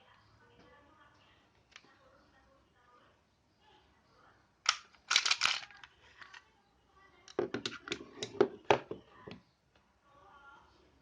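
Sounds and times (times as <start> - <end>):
pistol parts clicking and clacking: 4.7 - 6.4.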